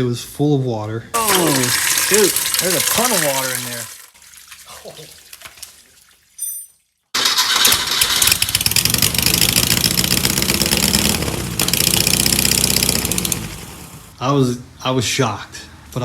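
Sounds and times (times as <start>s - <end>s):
car engine running: 8.2s - 14.2s.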